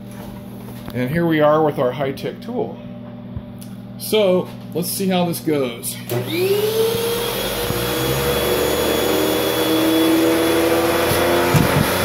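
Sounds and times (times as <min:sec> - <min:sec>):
vacuum cleaner motor whine: 0:06.0 - 0:12.0.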